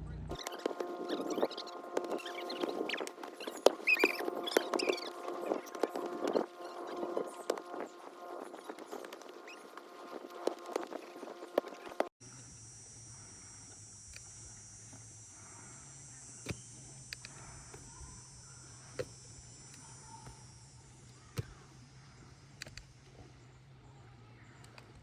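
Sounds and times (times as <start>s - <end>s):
faint low hum: 0.0s - 25.0s
insects buzzing: 0.3s - 25.0s
sharp clicks: 16.4s - 18.1s, 22.2s - 23.1s.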